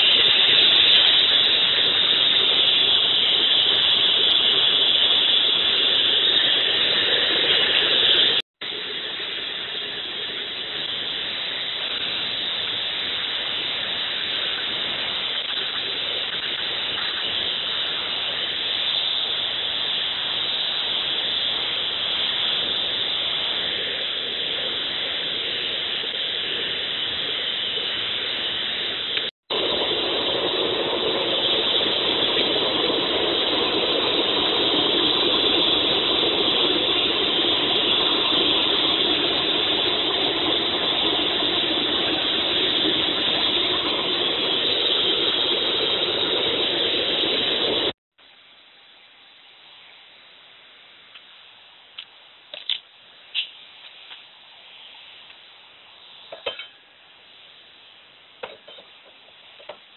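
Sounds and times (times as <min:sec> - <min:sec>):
furnace blower air rushing: 0:00.0 - 0:48.0.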